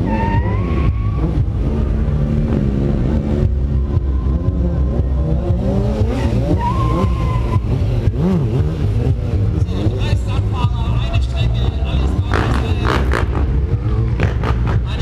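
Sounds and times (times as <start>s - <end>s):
tyre squealing: 0.0s - 1.8s, 5.7s - 10.0s
motorcycle engine revving: 0.0s - 15.0s.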